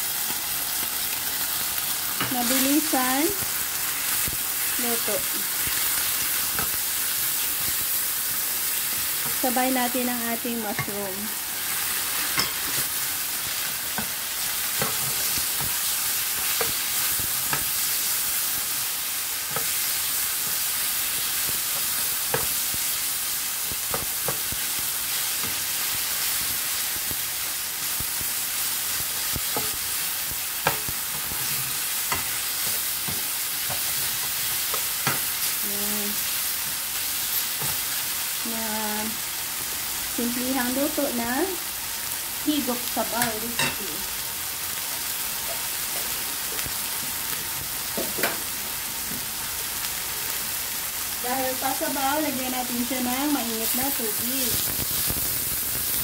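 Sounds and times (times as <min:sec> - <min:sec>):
meat sizzling in a frying pan: 0:00.0 - 0:56.0
spatula scraping and clicking on pan: 0:12.1 - 0:13.0, 0:14.8 - 0:17.8.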